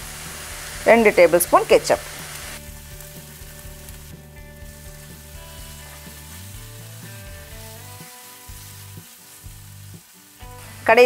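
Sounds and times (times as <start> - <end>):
vegetables sizzling in oil: 0.0 - 11.0
wooden spatula scraping skillet: 2.2 - 9.6.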